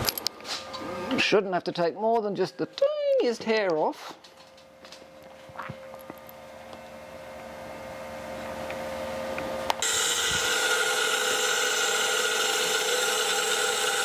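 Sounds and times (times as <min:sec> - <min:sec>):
grinder spindle humming: 0:09.7 - 0:14.0
grinding wheel hissing: 0:09.8 - 0:14.0.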